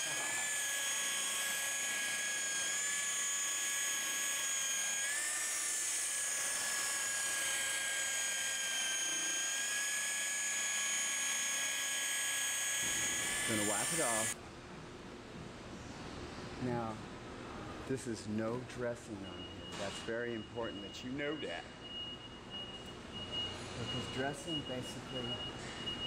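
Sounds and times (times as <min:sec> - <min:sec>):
electric buffer motor whine: 0:00.0 - 0:14.4.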